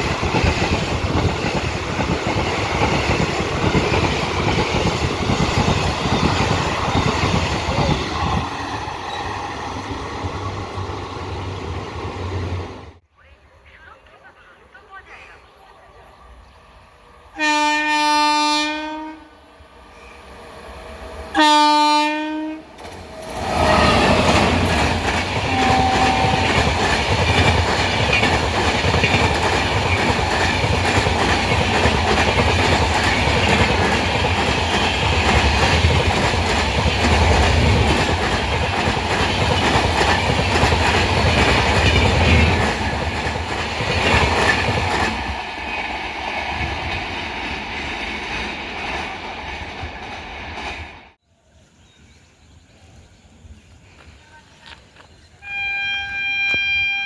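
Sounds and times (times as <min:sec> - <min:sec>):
train rumbling past: 0:00.0 - 0:13.3, 0:14.0 - 0:51.2
train horn blasts: 0:17.4 - 0:19.4, 0:21.3 - 0:22.7, 0:25.4 - 0:26.7, 0:55.4 - 0:57.0.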